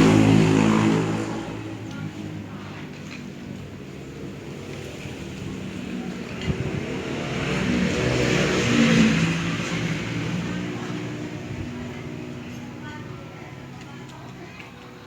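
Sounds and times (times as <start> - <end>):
vehicle engine passing by: 0.0 - 2.8, 4.4 - 12.8.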